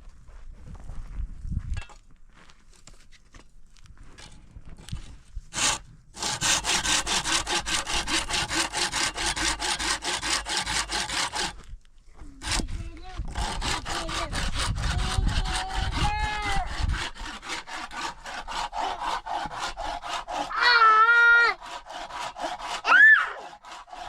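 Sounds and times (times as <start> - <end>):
hand saw cutting wood: 5.5 - 11.6, 12.4 - 24.0.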